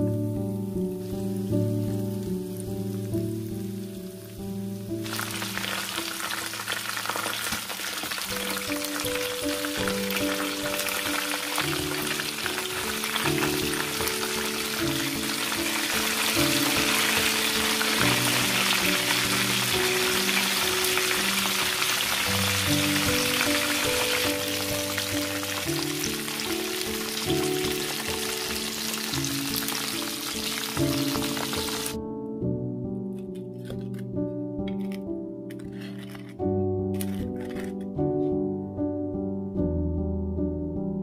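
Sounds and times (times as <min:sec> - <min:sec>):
soft background music: 0:00.0 - 0:41.0
chicken frying in hot oil: 0:01.0 - 0:32.0.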